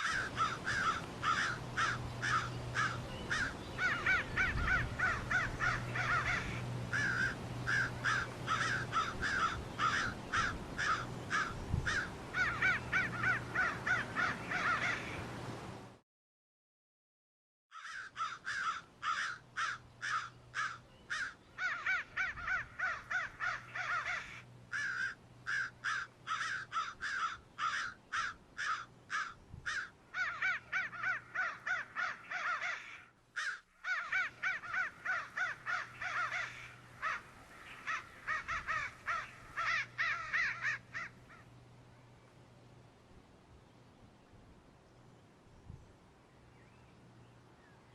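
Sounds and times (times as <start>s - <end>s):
crows cawing: 0.0s - 15.2s, 17.7s - 41.6s.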